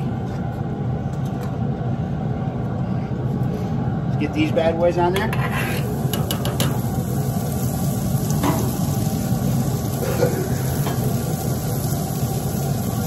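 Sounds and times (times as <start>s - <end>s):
low steady hum: 0.0s - 13.0s
onions sizzling on a griddle: 5.4s - 13.0s.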